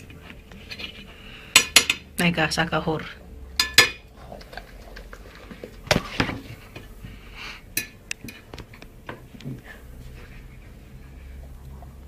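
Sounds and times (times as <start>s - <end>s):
faint steady hum: 0.0s - 12.0s
dishes clinking: 0.7s - 2.1s, 3.6s - 4.1s.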